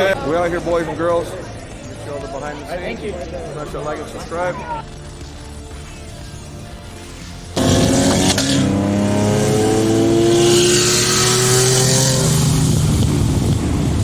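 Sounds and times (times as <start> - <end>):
car engine accelerating: 7.6 - 14.0.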